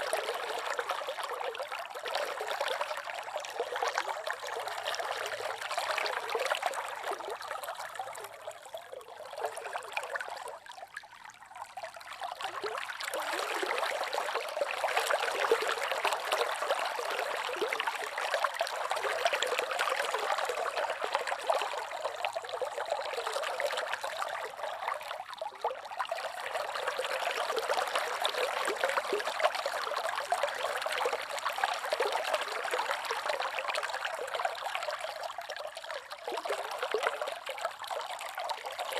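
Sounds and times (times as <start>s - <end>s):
river water babbling: 12.2s - 38.9s.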